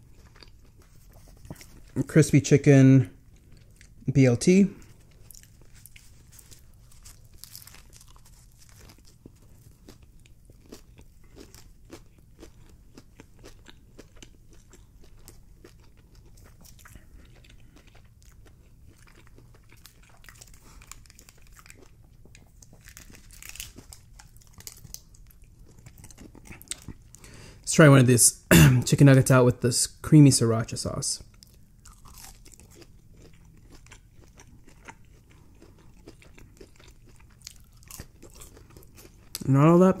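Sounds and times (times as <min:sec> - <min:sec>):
chewing crispy chicken: 0:00.0 - 0:27.4, 0:31.2 - 0:40.0
small crunches: 0:04.8 - 0:27.0, 0:31.4 - 0:39.5.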